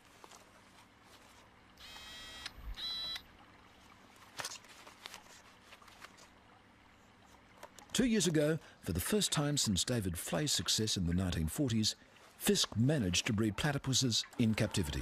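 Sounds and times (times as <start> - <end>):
short electronic beeps: 1.8 - 3.2.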